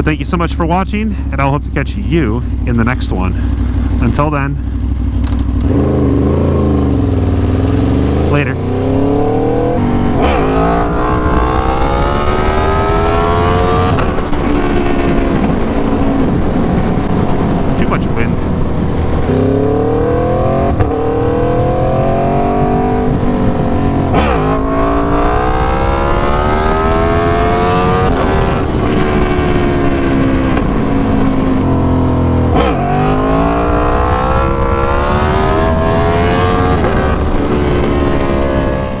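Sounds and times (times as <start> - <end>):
motorcycle engine accelerating hard: 0.0 - 39.0
gear upshift crack: 5.2 - 5.8.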